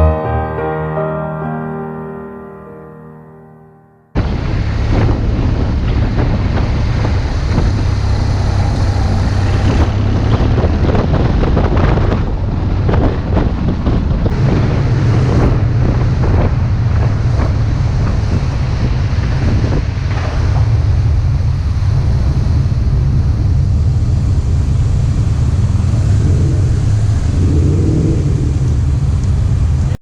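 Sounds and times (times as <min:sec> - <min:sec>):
wind buffeting microphone: 0:04.2 - 0:30.0.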